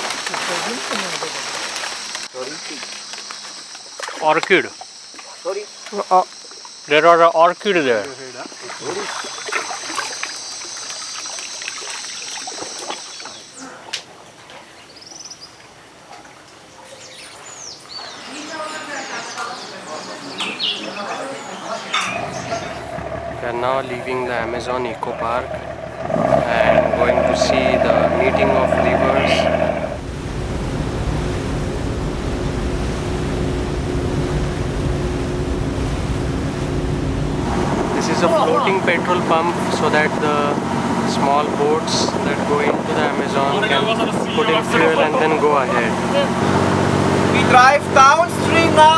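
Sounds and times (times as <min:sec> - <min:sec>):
water rushing: 0:00.0 - 0:14.8, 0:21.7 - 0:48.9
insects droning: 0:00.0 - 0:48.9
water trickling and dripping: 0:07.6 - 0:16.8
motorboat engine humming: 0:21.5 - 0:48.9
wind noise: 0:22.0 - 0:47.4.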